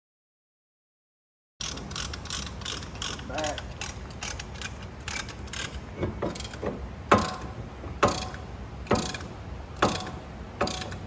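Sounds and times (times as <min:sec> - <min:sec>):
ratchet tool metallic clicks: 0:01.6 - 0:06.6, 0:07.2 - 0:11.0.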